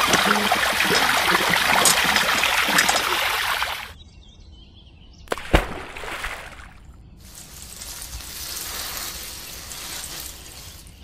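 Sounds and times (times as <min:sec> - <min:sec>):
water trickling onto wet sand: 0:07.2 - 0:11.0.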